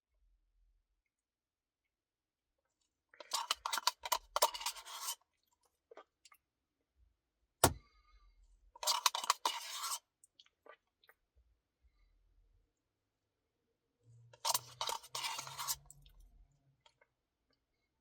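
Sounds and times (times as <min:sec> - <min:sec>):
chewing and scraping: 0:03.2 - 0:06.1, 0:08.8 - 0:11.2, 0:14.4 - 0:16.3.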